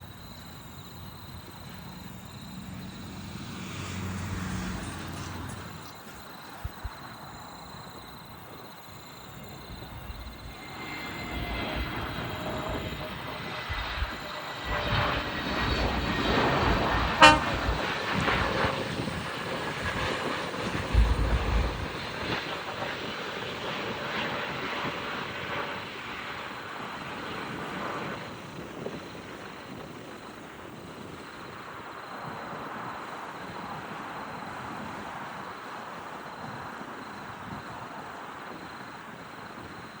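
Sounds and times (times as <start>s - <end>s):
low rumbling surges: 0.0s - 22.8s
faint high whine: 0.0s - 34.5s
jet engine and airflow noise: 0.0s - 40.0s
sharp pitched toot: 17.1s - 17.9s.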